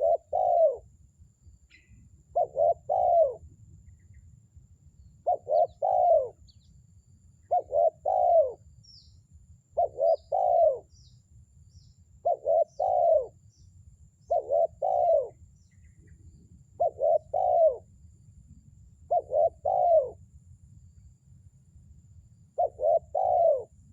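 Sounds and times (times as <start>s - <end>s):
dove cooing: 0.0s - 0.8s, 1.8s - 3.4s, 5.2s - 6.5s, 7.5s - 8.6s, 9.8s - 11.0s, 12.2s - 13.4s, 14.3s - 15.4s, 16.8s - 17.9s, 19.1s - 20.2s, 22.6s - 23.8s
small birds chirping: 1.4s - 4.4s, 5.0s - 17.8s.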